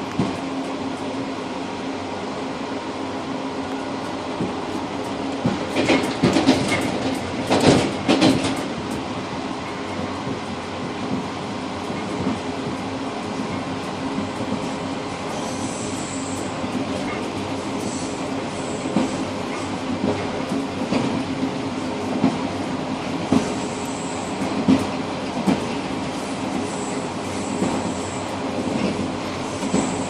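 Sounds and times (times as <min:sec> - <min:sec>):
train rumbling: 0:00.0 - 0:30.0
wheels clacking over track: 0:05.1 - 0:09.1.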